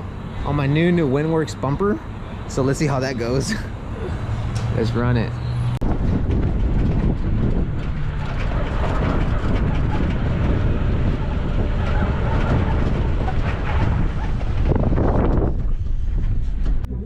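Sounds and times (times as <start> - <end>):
vehicle engine and tyre rumble: 0.0 - 17.0
wind on microphone: 5.4 - 17.0
rattles: 5.9 - 16.9.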